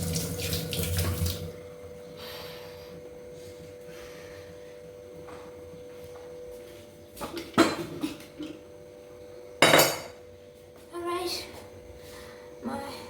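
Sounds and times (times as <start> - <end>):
dishes and utensils clattering: 7.2 - 8.6, 9.6 - 10.2.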